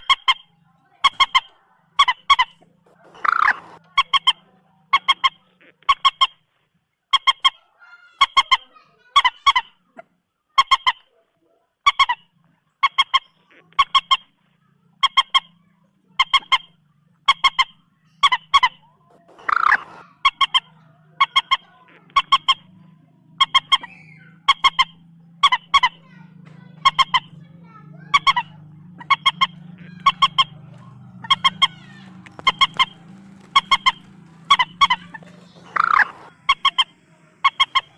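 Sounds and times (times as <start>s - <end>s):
moorhen honking calls: 0.0s - 6.4s, 15.0s - 37.9s.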